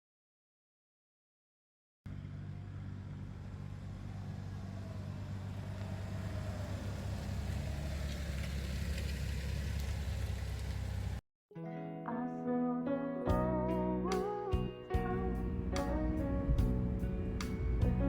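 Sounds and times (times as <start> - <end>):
van engine running: 2.1 - 11.2, 15.0 - 18.0.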